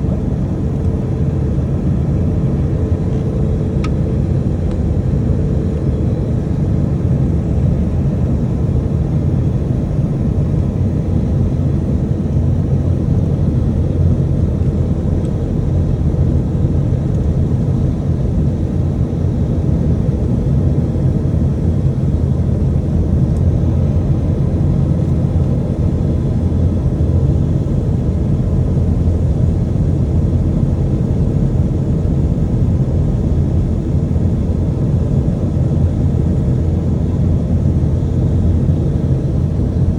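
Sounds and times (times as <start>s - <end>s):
airliner cabin rumble: 0.0s - 39.9s.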